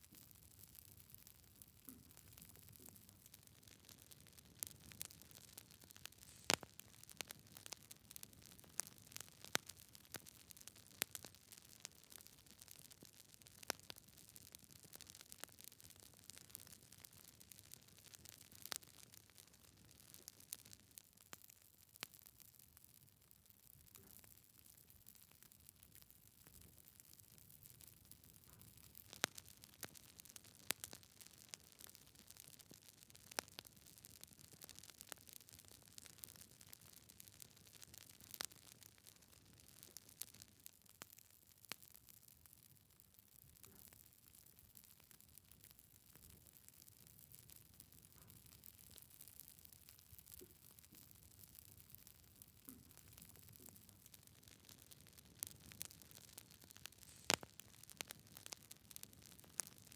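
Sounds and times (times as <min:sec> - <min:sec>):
wood fire crackling: 0:00.0 - 0:59.9
logs crackling and snapping: 0:06.0 - 0:07.8, 0:52.6 - 0:59.9.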